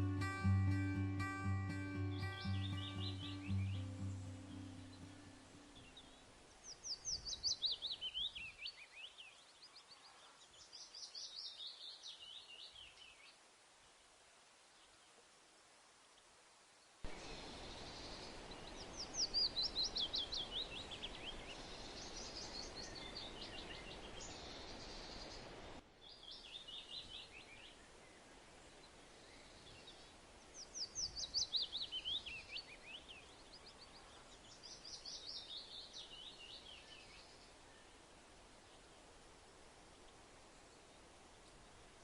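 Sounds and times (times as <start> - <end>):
songbird singing: 0.0 - 13.4, 17.1 - 42.0
steady hiss: 13.2 - 42.0.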